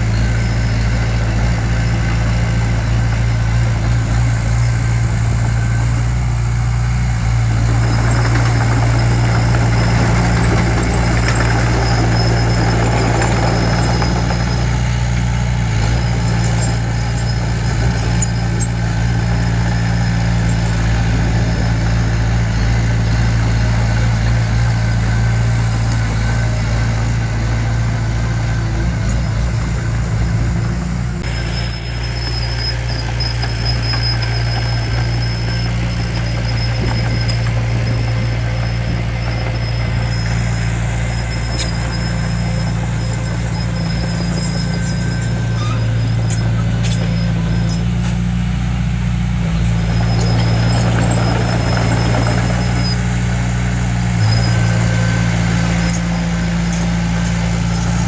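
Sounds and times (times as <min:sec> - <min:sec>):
diesel engine running steadily: 0:00.0 - 0:58.0.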